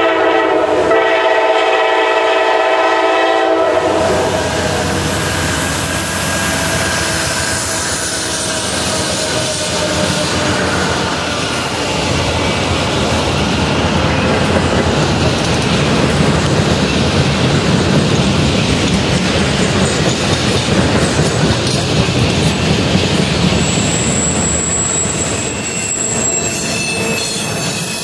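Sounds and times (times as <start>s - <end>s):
freight train wheels rumbling on rails: 0.0s - 28.0s
high wheel squeal: 3.9s - 12.0s, 23.5s - 28.0s.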